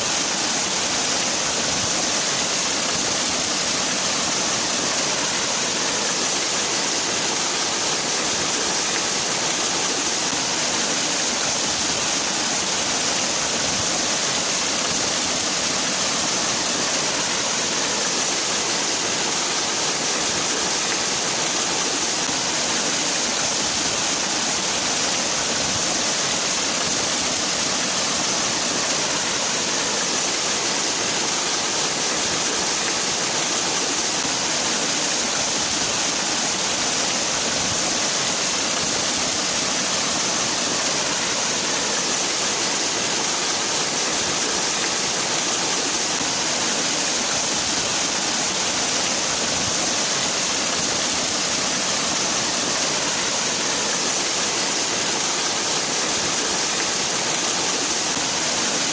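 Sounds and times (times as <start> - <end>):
waterfall rushing: 0.0 - 58.9.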